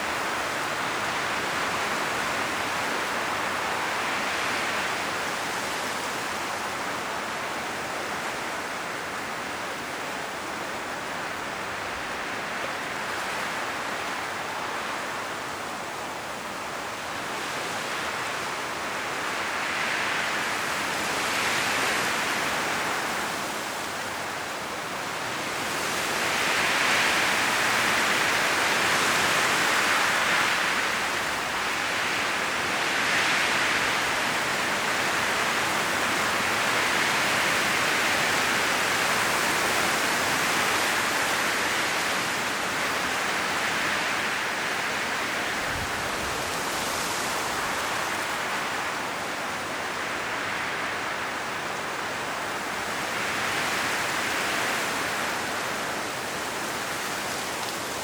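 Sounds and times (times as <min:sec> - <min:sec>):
wind rustling tree leaves: 0:00.0 - 0:58.0.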